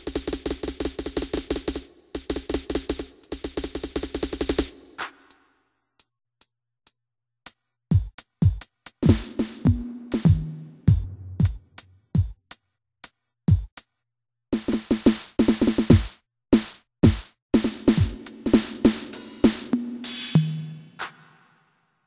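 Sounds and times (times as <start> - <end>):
electronic drum hits: 9.1 - 11.8.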